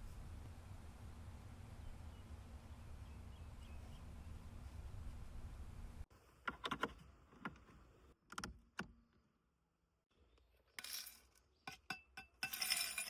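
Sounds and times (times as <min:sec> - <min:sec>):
small hard objects clinking: 0:10.7 - 0:13.0.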